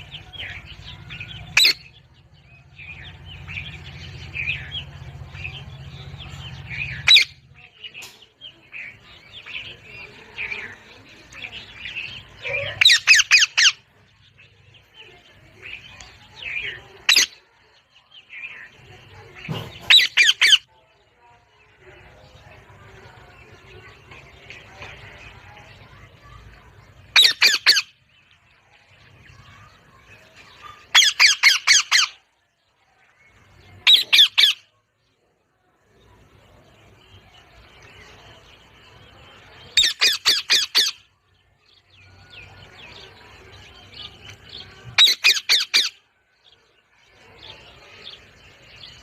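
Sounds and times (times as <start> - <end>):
parrot squawks: 1.6 - 1.8, 7.0 - 7.4, 12.5 - 13.8, 19.9 - 20.6, 27.2 - 27.9, 30.9 - 32.2, 33.8 - 34.7, 39.8 - 41.0, 45.0 - 46.0
parrot chattering: 12.5 - 13.8, 30.9 - 32.2, 33.8 - 34.6, 39.8 - 41.0, 45.0 - 46.0.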